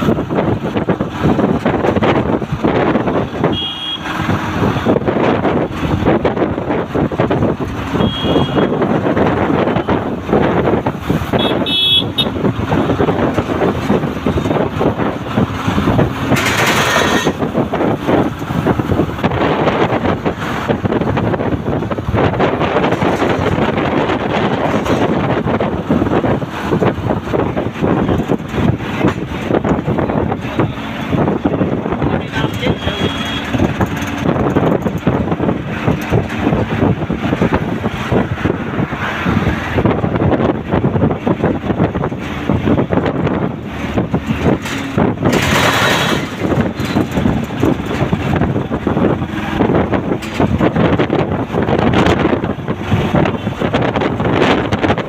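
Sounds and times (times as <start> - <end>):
street traffic: 0.0 - 55.0
vehicle engine running: 0.0 - 55.0
wind buffeting microphone: 0.0 - 55.0
horn toot: 3.4 - 4.1, 8.0 - 8.8, 11.3 - 12.4, 32.6 - 33.6
rattling and knocking: 12.3 - 32.7, 33.4 - 38.3, 41.3 - 53.6.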